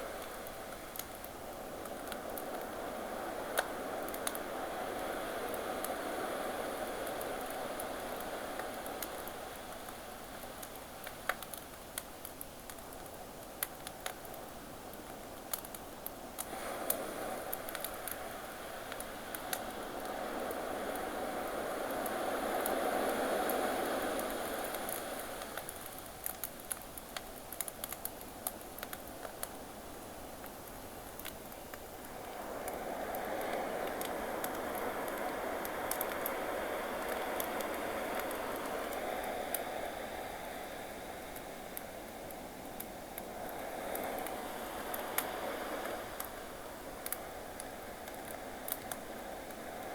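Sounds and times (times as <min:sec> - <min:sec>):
ocean waves: 0:00.0 - 0:09.8, 0:16.5 - 0:25.9, 0:32.0 - 0:49.9
campfire crackling and popping: 0:00.1 - 0:06.0, 0:06.8 - 0:39.6, 0:41.2 - 0:49.9.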